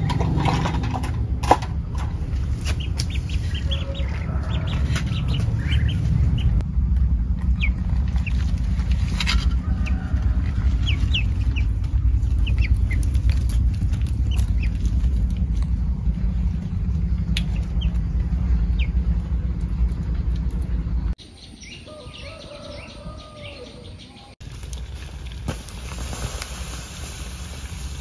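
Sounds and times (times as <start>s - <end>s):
steady low rumble: 0.0s - 28.0s
small birds chirping: 2.4s - 9.0s, 10.4s - 24.4s.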